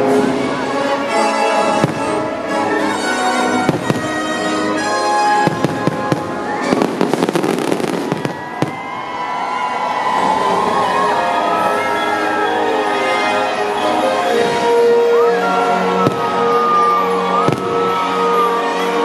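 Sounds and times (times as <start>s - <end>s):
music playing: 0.0s - 19.0s
fireworks bursting and crackling: 1.7s - 9.6s, 14.2s - 18.7s.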